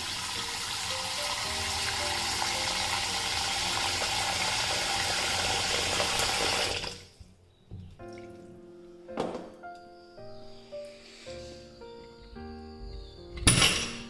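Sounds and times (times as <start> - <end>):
water running from a tap: 0.0 - 7.2.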